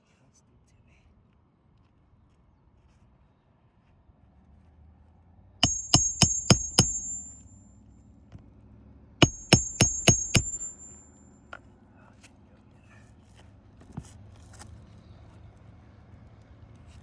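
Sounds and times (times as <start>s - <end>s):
hammer striking with metallic ring: 5.6s - 7.6s, 9.2s - 11.2s.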